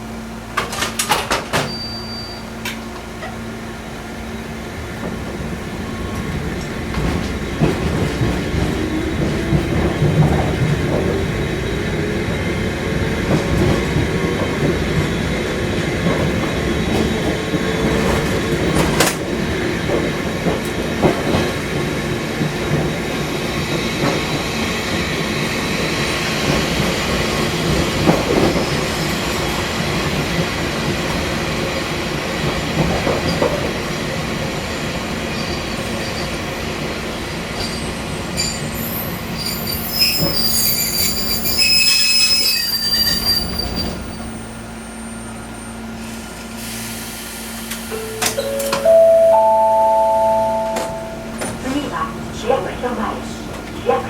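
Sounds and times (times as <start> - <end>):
railcar motor whine: 0.0 - 33.0, 33.6 - 54.0
wheel and rail clatter: 13.0 - 25.2
high-pitched wheel squeal: 38.4 - 44.3.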